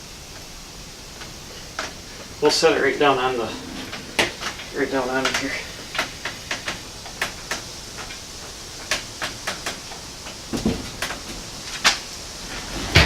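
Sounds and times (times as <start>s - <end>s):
sharp clicks and knocks: 1.1s - 13.0s
dull thump: 10.5s - 11.5s.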